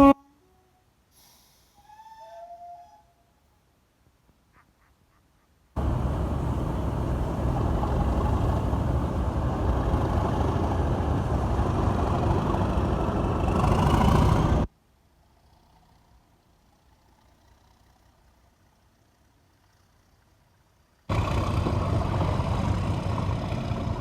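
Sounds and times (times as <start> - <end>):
heavy vehicle engine running: 5.8 - 14.7, 21.1 - 24.0.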